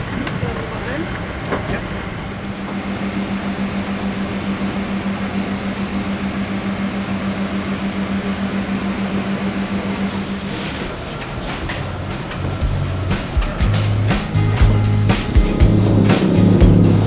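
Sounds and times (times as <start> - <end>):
cabin air conditioning noise: 0.0 - 17.0
pulsing low hum: 11.8 - 17.0.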